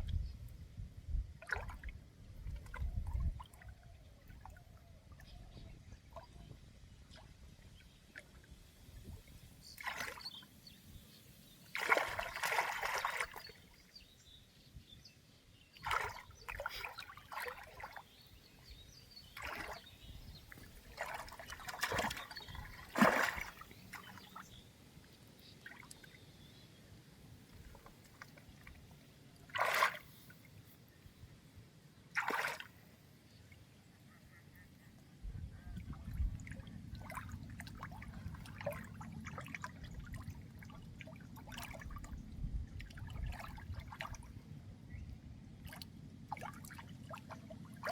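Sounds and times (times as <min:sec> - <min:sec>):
water splashing and trickling: 0:01.4 - 0:10.8, 0:11.4 - 0:14.4, 0:15.7 - 0:26.4, 0:27.4 - 0:30.5, 0:32.1 - 0:32.9, 0:35.7 - 0:47.9.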